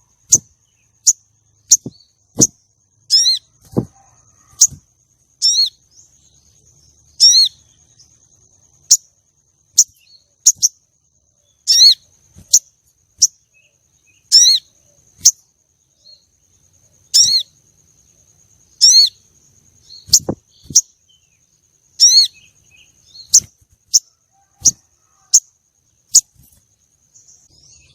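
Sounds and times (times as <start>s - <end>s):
bird chirping and clicking: 0.2s - 4.0s, 9.7s - 10.8s, 14.2s - 15.4s, 20.0s - 21.0s, 22.0s - 25.5s, 26.1s - 26.6s.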